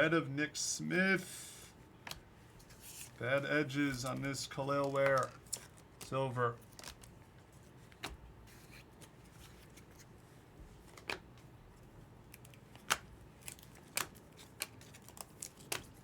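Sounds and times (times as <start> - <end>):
cards sliding: 3.8 - 6.2
cards clicking: 4.0 - 6.2, 12.3 - 16.0.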